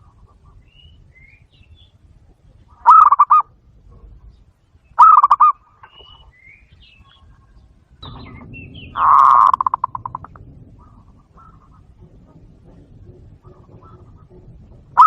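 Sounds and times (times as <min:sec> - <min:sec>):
small birds chirping: 0:00.0 - 0:15.0
dove cooing: 0:02.7 - 0:04.1, 0:05.0 - 0:05.6, 0:08.1 - 0:15.0.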